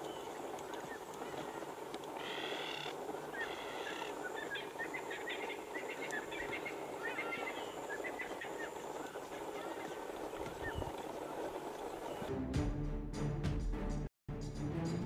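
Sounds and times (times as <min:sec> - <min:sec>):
buzzy bird calls: 0:00.0 - 0:12.3
wild birds chirping: 0:00.0 - 0:12.3.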